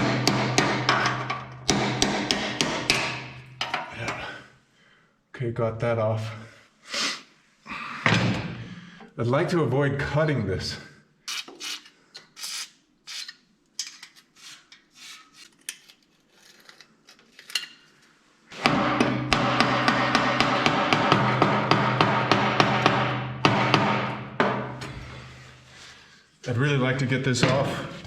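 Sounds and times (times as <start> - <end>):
hand tools knocking on metal: 0.0 - 4.2, 18.6 - 24.9.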